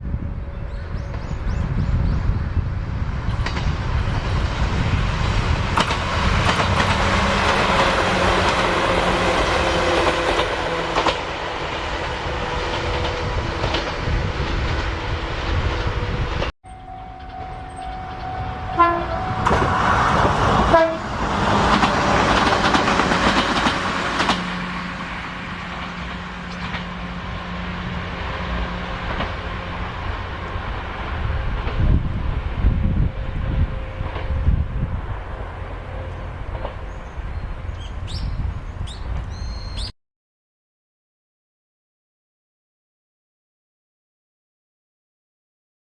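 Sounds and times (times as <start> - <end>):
train wheels rumbling on track: 0.1 - 39.9
train horn: 6.8 - 23.1, 31.8 - 38.0.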